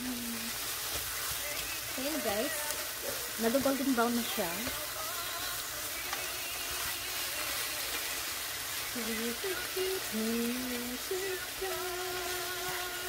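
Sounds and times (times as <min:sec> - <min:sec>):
person humming: 0:00.0 - 0:00.5, 0:09.0 - 0:13.0
chicken sizzling in a frying pan: 0:00.0 - 0:13.0
spatula turning food: 0:00.0 - 0:13.0.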